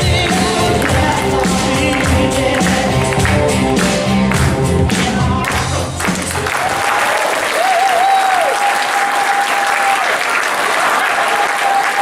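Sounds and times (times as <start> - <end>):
audience applauding: 0.1 - 12.0.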